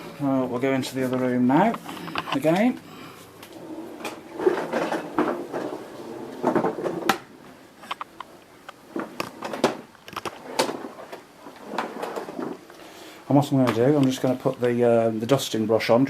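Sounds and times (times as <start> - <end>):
vacuum cleaner knocking and clunking: 3.5 - 7.3.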